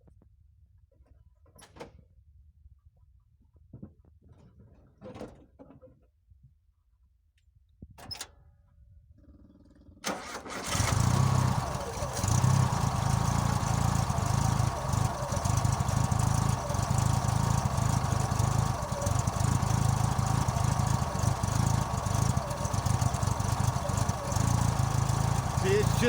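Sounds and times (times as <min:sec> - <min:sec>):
car engine idling roughly: 0:10.7 - 0:26.0.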